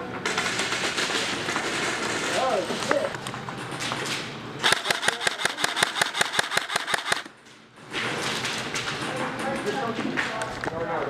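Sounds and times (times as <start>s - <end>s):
airsoft gun full-auto burst: 0.2s - 2.6s, 4.6s - 7.3s.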